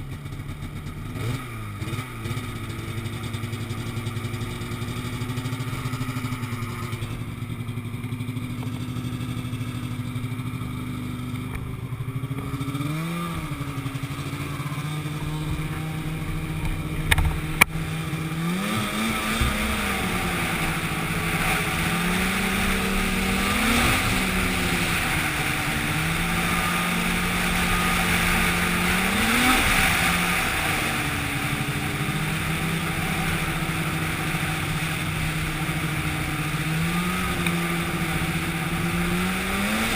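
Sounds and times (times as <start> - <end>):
engine running: 0.0 - 39.9
rushing noise: 11.9 - 39.9.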